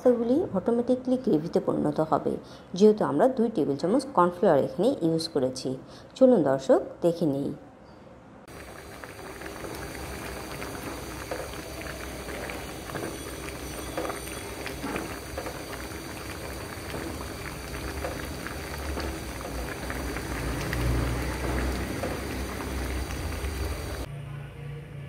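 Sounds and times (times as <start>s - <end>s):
sauce bubbling and popping: 8.5s - 24.1s.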